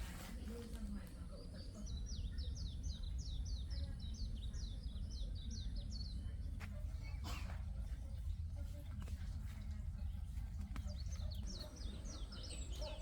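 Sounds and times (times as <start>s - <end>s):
songbird chirping: 9.0s - 13.0s.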